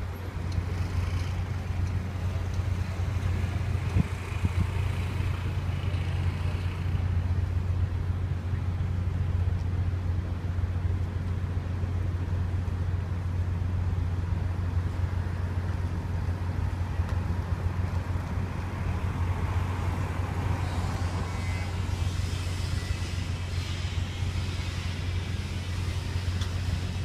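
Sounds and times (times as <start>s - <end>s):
ferry engine droning: 0.0s - 27.0s
rushing hiss: 20.3s - 27.0s.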